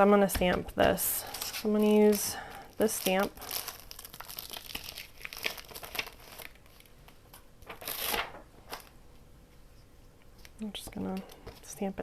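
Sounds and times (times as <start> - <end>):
paper rustling and crinkling: 0.9 - 8.9.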